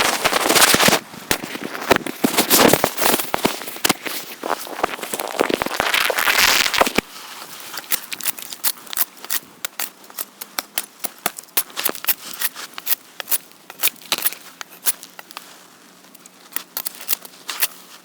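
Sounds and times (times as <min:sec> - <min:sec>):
wood fire crackling and popping: 0:04.7 - 0:07.1.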